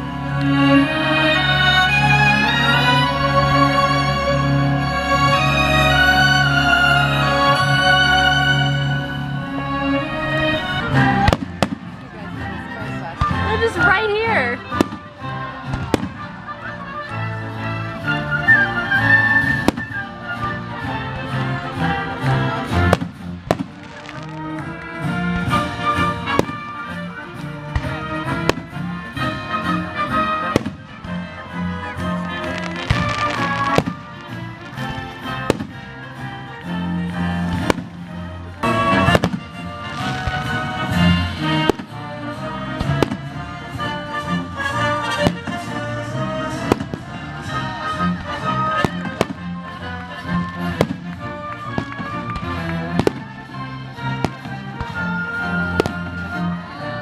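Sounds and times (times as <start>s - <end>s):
symphony orchestra playing: 0.0s - 57.0s
firework bangs: 11.0s - 12.2s, 14.7s - 16.4s, 19.4s - 20.1s, 22.7s - 27.0s, 27.6s - 36.1s, 37.2s - 42.1s, 42.8s - 44.0s, 44.6s - 49.5s, 50.3s - 56.3s.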